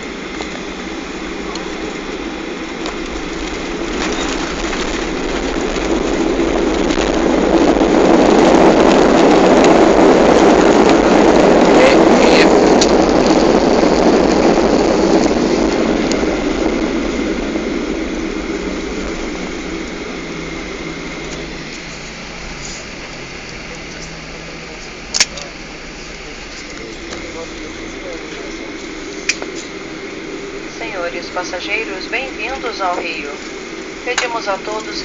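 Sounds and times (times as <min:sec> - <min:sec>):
jet engines reverse thrust roar: 0:00.0 - 0:35.0.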